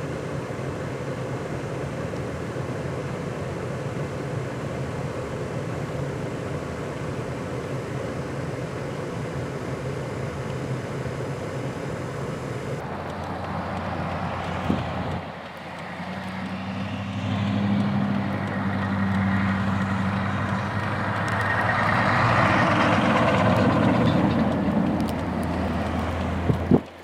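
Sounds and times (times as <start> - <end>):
vehicle engine running: 0.0 - 27.0
sharp clicks: 12.6 - 27.0.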